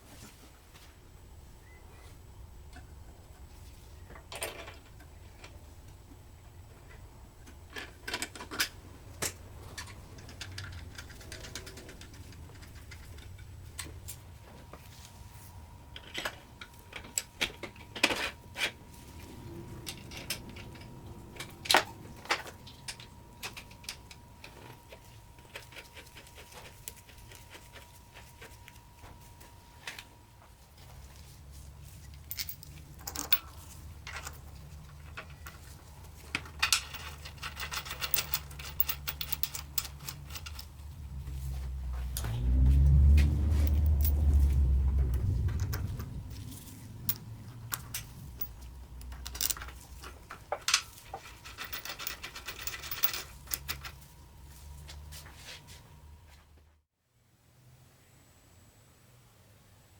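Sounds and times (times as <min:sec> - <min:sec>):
faint high hum: 0:00.0 - 0:59.9
tools and metal parts clinking: 0:07.7 - 0:14.2, 0:15.9 - 0:28.8, 0:31.9 - 0:41.2, 0:43.2 - 0:54.2.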